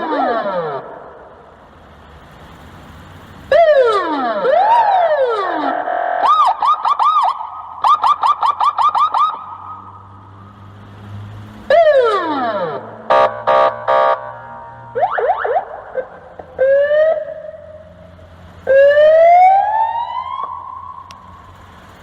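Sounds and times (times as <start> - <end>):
police siren rapid warble: 0.0 - 1.0, 3.5 - 10.1, 11.7 - 18.0, 18.6 - 21.1
police siren wail: 0.0 - 1.2, 3.5 - 10.3, 11.7 - 21.5.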